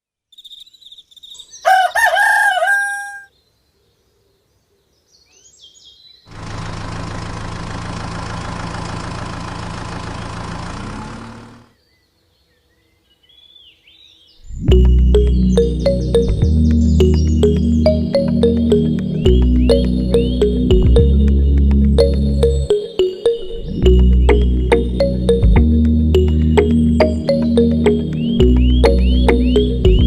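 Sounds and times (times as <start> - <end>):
small birds chirping: 0.3 - 2.0, 11.4 - 25.4, 26.1 - 30.0
rooster crowing: 1.6 - 3.3
engine humming: 6.3 - 11.7, 14.7 - 30.0.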